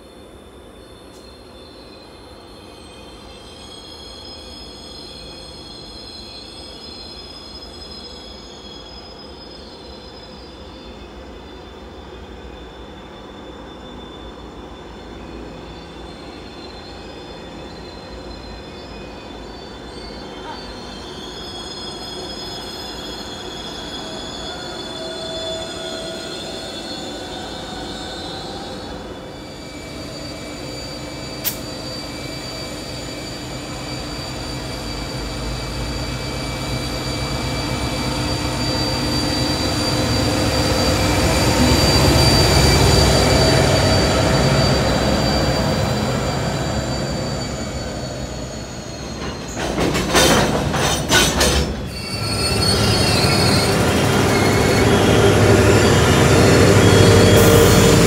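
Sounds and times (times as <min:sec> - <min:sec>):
train wheel squeals: 0:00.0 - 0:58.0
sharp click: 0:31.4 - 0:31.7.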